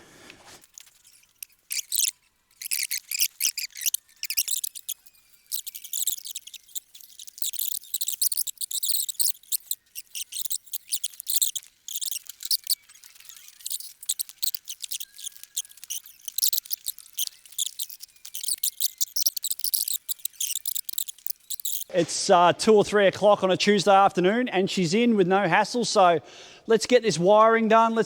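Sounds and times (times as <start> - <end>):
high-pitched chirping and ticking: 0.6 - 21.9.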